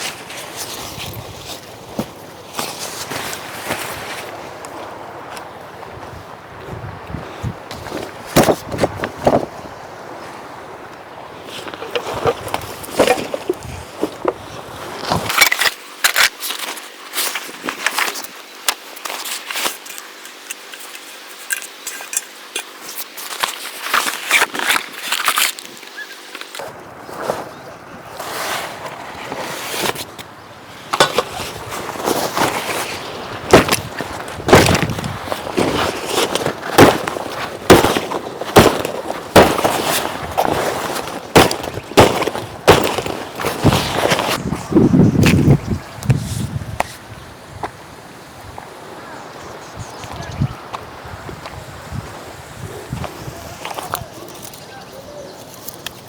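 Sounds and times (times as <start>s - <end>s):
crackling and rustling: 0.0s - 45.5s, 52.9s - 56.0s
dry wood cracking: 15.0s - 26.6s, 30.9s - 44.4s
small objects clicking and rustling: 15.3s - 26.6s.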